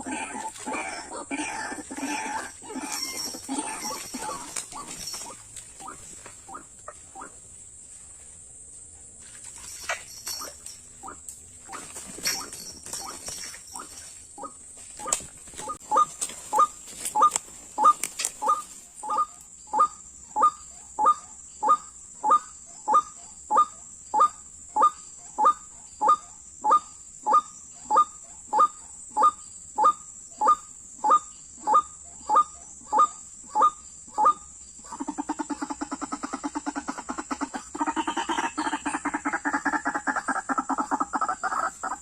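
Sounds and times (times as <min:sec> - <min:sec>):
waterhen harsh calls: 0:00.0 - 0:07.3.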